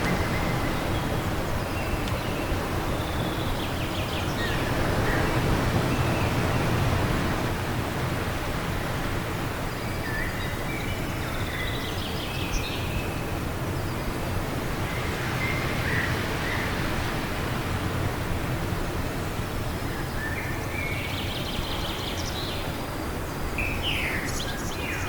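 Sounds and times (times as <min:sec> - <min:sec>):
small birds chirping: 0:00.0 - 0:06.9
wind: 0:00.0 - 0:25.0.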